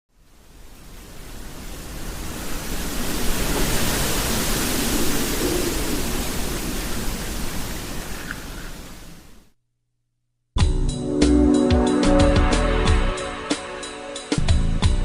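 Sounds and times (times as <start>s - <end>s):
hurricane wind and rain: 0.1s - 9.5s.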